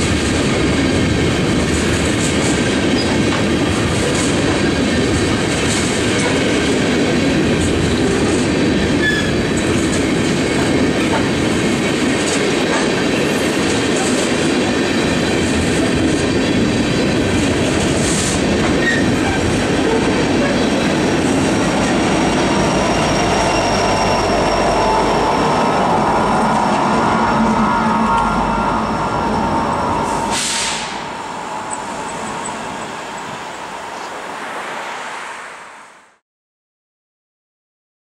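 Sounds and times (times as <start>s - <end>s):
steel wheels on rail: 0.0s - 35.7s.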